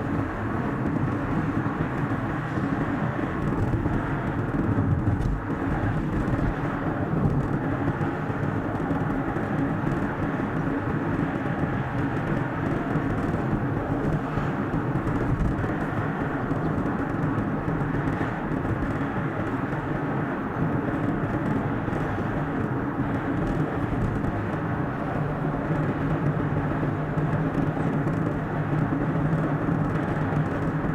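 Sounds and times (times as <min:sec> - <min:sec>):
car road and engine noise: 0:00.0 - 0:30.9.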